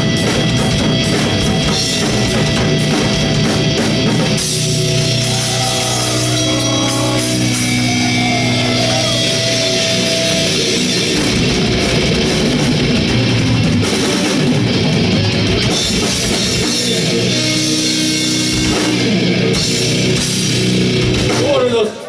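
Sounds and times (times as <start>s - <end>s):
electric guitar: 0.0s - 21.4s
drum kit: 0.0s - 22.0s.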